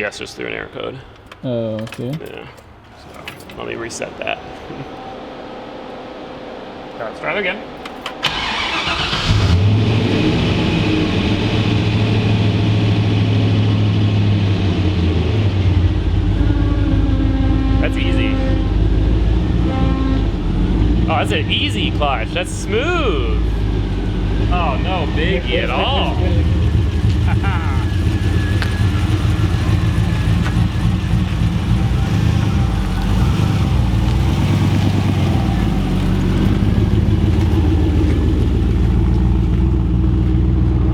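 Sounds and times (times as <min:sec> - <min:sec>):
car engine idling: 0:07.8 - 0:09.7, 0:20.4 - 0:40.9
engine starter cranking: 0:08.0 - 0:09.7.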